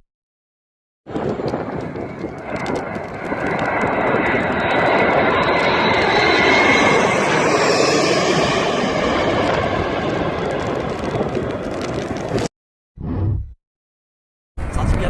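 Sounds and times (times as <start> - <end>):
plane flying overhead: 1.1 - 12.5.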